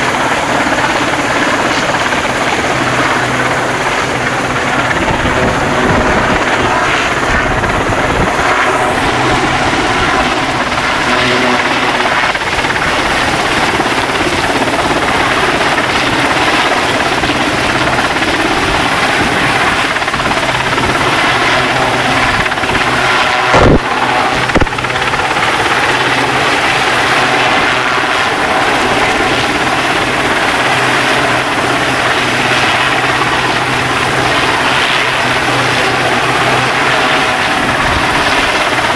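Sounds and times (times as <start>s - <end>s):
helicopter rotor and turbine: 0.0s - 38.9s
brief thumps: 23.5s - 23.8s.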